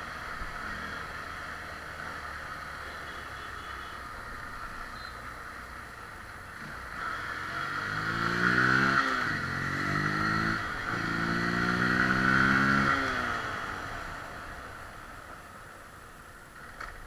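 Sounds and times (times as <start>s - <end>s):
motorcycle engine revving: 6.6s - 15.0s.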